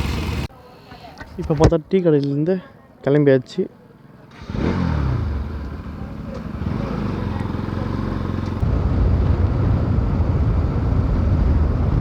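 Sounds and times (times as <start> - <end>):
motorcycle engine running: 0.0 - 0.5, 4.2 - 12.0.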